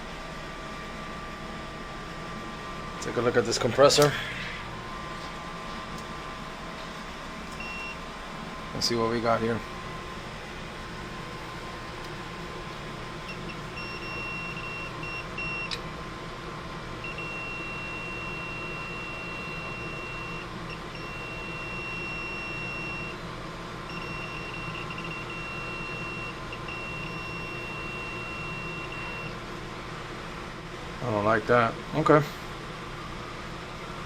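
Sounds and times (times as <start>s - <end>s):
multimeter continuity beeping: 7.5s - 8.0s, 13.2s - 15.8s, 17.0s - 23.2s, 23.9s - 29.4s.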